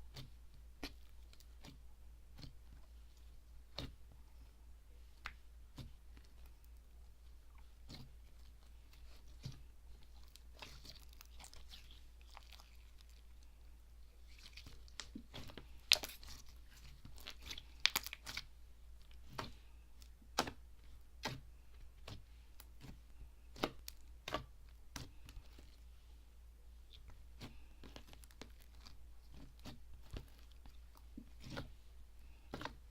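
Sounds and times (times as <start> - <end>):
slime clicking and popping: 14.9 - 16.2, 17.2 - 18.5.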